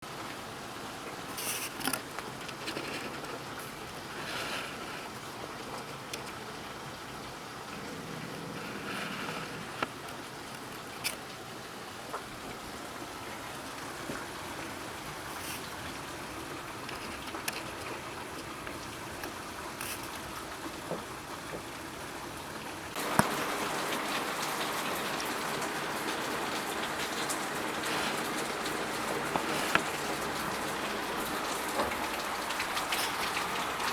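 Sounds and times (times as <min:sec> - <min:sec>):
heavy rain falling: 0:00.1 - 0:33.9
sharp drips and taps: 0:16.7 - 0:21.8, 0:22.5 - 0:33.9.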